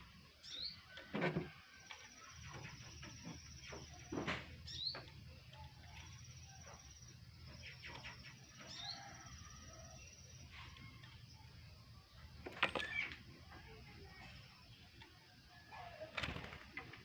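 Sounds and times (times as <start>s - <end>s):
bird chirps: 2.0s - 13.2s.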